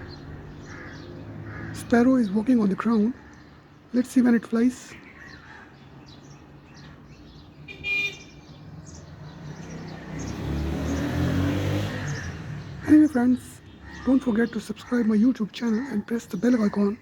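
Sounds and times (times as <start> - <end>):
car horn toot: 7.7 - 8.3
car passing by: 8.8 - 13.0.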